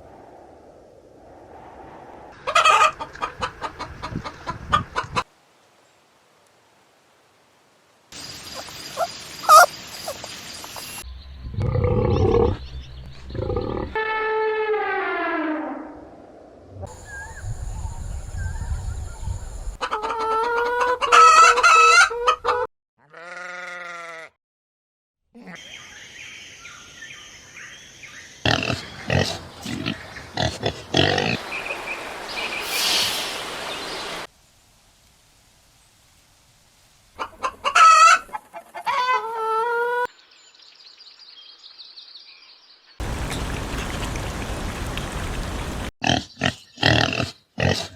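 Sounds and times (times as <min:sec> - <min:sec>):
long falling animal call: 0:08.5 - 0:10.2
short high animal chirps: 0:08.5 - 0:10.2
pig grunting: 0:11.6 - 0:12.6, 0:13.3 - 0:14.0, 0:28.4 - 0:31.4, 0:46.0 - 0:47.9
hissing breathy noise: 0:32.1 - 0:34.3.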